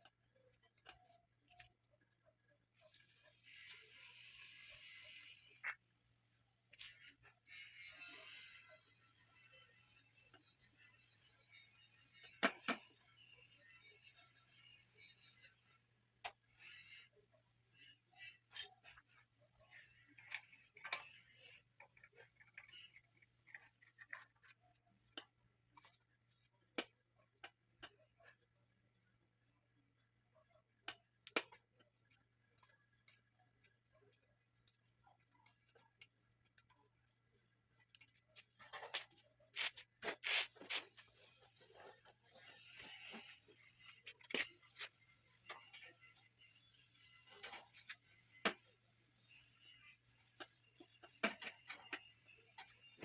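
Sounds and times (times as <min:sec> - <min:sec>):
small clicks and taps: 0:30.8 - 0:36.9.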